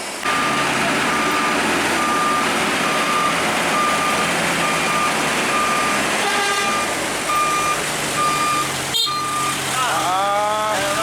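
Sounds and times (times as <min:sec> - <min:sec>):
truck engine running: 0:00.0 - 0:11.0
truck reversing alarm beeping: 0:00.2 - 0:10.1.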